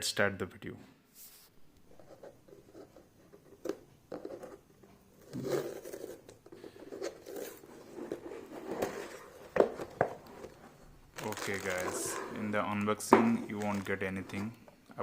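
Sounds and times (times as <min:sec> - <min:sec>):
packaging rustling and scraping: 0:05.2 - 0:14.6.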